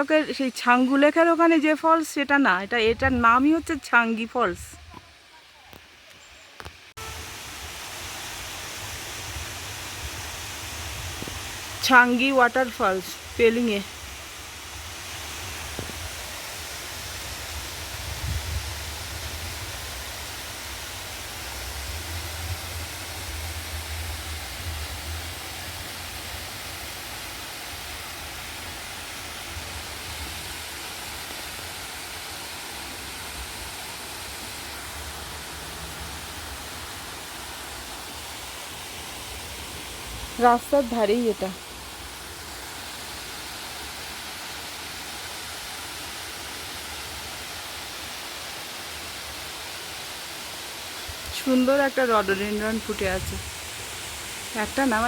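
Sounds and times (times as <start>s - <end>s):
small waterfall rushing: 0.0s - 55.0s.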